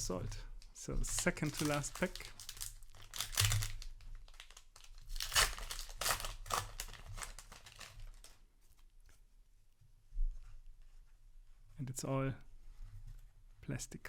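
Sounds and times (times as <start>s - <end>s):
wrapper crinkling and tearing: 0.6s - 8.4s.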